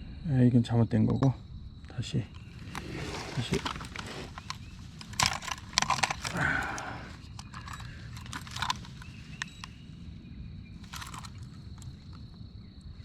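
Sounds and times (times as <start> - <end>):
handling knocks and clatters: 2.3 - 9.9, 10.8 - 12.4.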